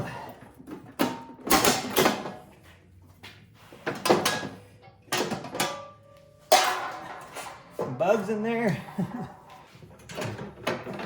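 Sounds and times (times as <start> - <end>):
sheet metal clattering and scraping: 3.8 - 8.0.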